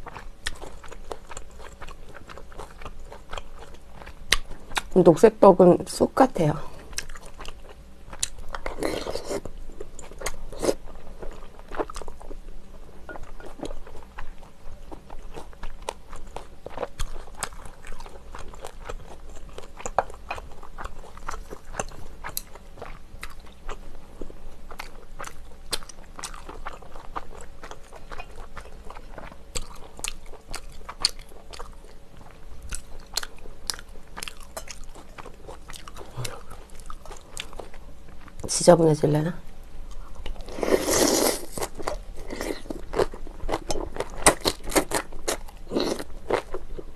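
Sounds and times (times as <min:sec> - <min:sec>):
person crunching food: 0:13.1 - 0:38.4, 0:39.9 - 0:46.8.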